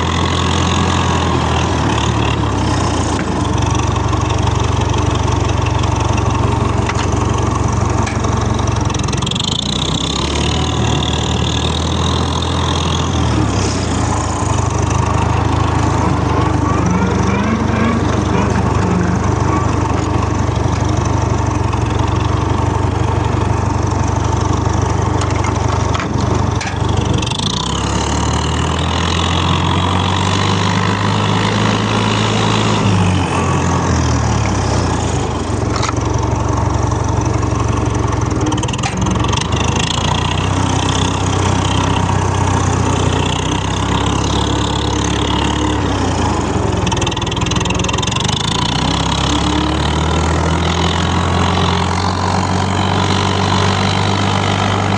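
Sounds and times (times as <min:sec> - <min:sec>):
tractor engine running: 0:00.0 - 0:54.9.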